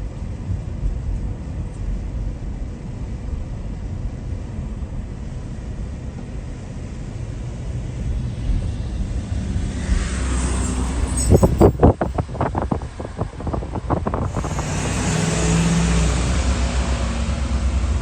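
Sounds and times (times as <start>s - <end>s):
vehicle low rumble: 0.0s - 18.0s.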